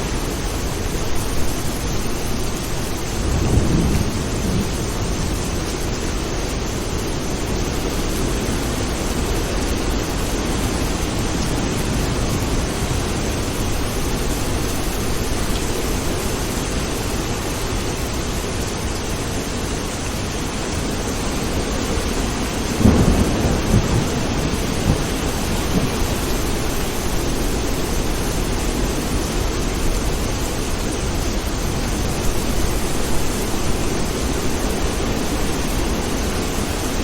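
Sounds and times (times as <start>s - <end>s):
heavy rain: 0.0s - 37.0s
thunder rumbling: 1.1s - 16.1s, 21.5s - 30.4s.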